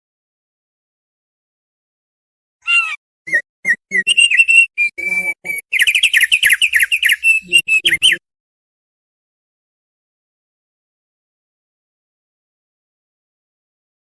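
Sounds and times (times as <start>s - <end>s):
bird singing whistled notes: 2.7s - 8.2s.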